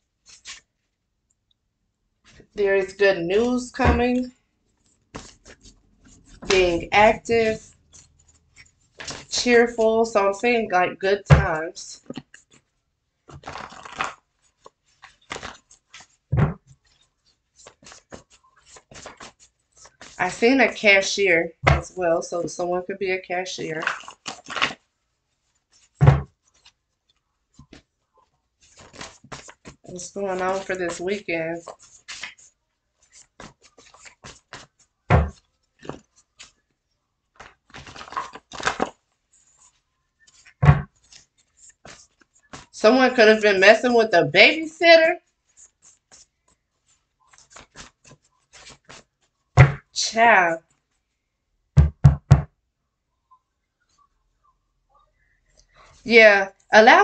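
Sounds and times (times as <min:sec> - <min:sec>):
cards rustling and flicking: 0:00.2 - 0:00.7, 0:03.4 - 0:09.6, 0:12.0 - 0:20.2, 0:23.8 - 0:24.9, 0:25.6 - 0:26.8, 0:28.5 - 0:42.8, 0:45.5 - 0:49.8
thump on table: 0:16.4 - 0:16.6, 0:26.0 - 0:26.3, 0:35.1 - 0:35.4, 0:40.6 - 0:40.9, 0:49.6 - 0:49.8, 0:51.8 - 0:52.5
soft thump: 0:26.0 - 0:26.3, 0:49.6 - 0:49.8.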